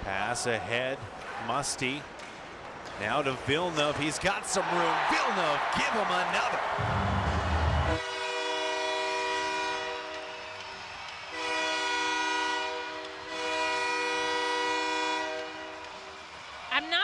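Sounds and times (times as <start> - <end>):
goal horn blasts: 7.7 - 10.3, 11.3 - 15.9.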